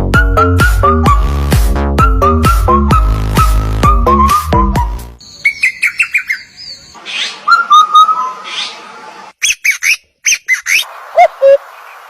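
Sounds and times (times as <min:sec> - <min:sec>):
songbird chirps and whistles: 0:02.0 - 0:08.8, 0:09.4 - 0:11.6
harsh raspy bird calls: 0:05.2 - 0:12.0.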